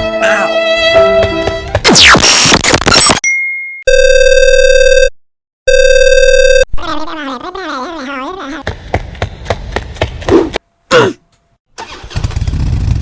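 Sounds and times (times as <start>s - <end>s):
buzzing ring tones: 3.9s - 5.1s, 5.7s - 6.7s.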